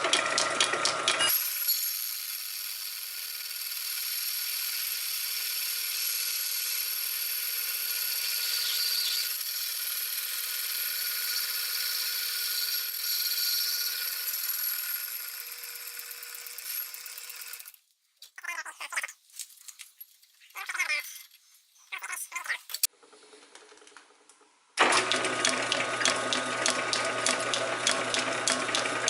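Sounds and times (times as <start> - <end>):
metal lathe cutting: 0.0 - 17.7, 24.8 - 29.0.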